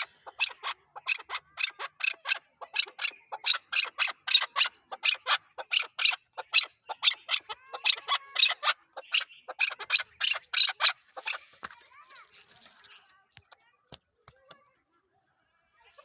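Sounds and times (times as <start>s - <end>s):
partridge clucking calls: 0.0s - 13.1s.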